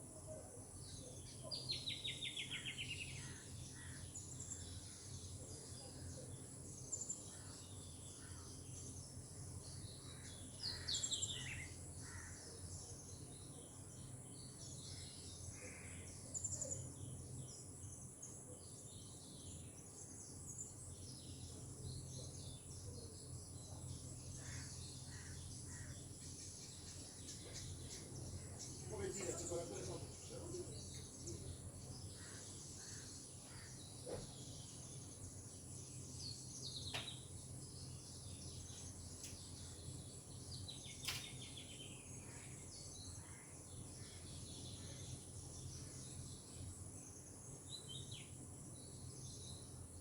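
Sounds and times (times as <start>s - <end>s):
bird chirps: 23.7s - 49.8s.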